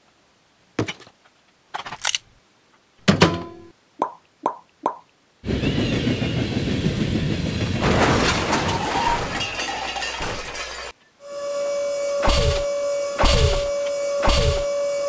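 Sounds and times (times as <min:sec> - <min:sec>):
train rumbling on rails: 0:05.4 - 0:15.0.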